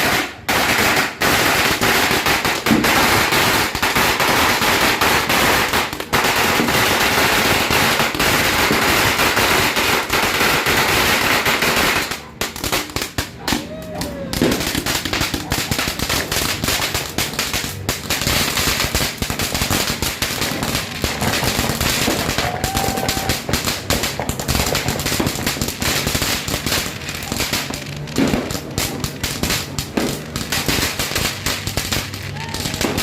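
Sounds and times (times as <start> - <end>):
firecrackers popping and crackling: 0.0 - 33.0.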